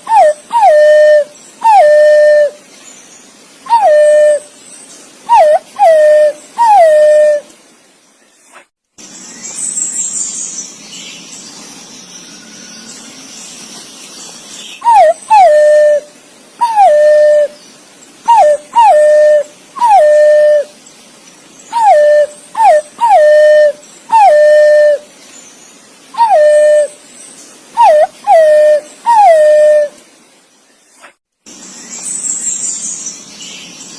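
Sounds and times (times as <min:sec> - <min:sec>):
pigeon whistled calls: 0:00.0 - 0:02.5, 0:05.3 - 0:07.4, 0:14.8 - 0:16.0, 0:16.6 - 0:17.6, 0:18.3 - 0:20.7, 0:21.7 - 0:25.0, 0:26.2 - 0:27.0, 0:27.8 - 0:29.9.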